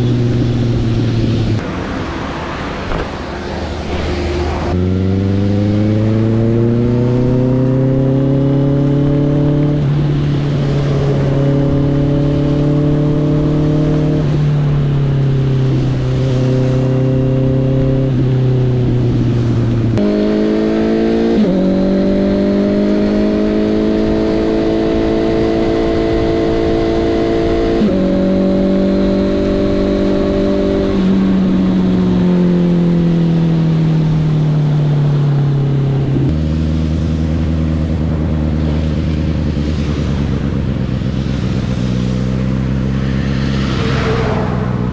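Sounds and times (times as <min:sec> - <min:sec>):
motorcycle engine running: 0:32.9 - 0:44.9.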